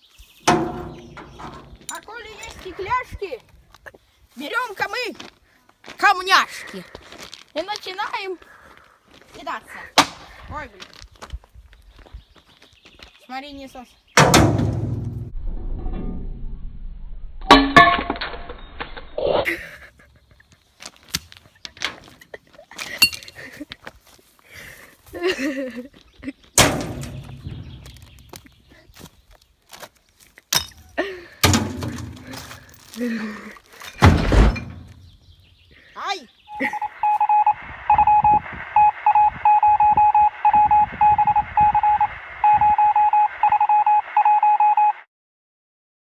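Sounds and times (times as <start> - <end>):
stones clinking on glass bottles: 23.0 - 23.4
radio static with crackles: 36.5 - 45.0
morse code beeps: 36.5 - 45.1.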